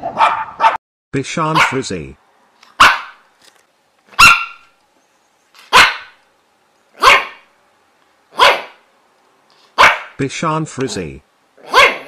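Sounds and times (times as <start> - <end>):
dog barking: 0.0 - 0.8, 1.5 - 1.8, 2.8 - 3.2, 4.2 - 4.7, 5.7 - 6.2, 7.0 - 7.5, 8.3 - 8.8, 9.8 - 10.2, 11.6 - 12.0.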